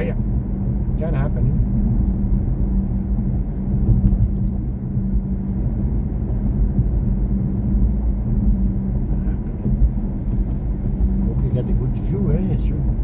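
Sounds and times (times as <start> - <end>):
low hum: 0.0 - 13.0
road and tyre rumble in car: 0.0 - 13.0.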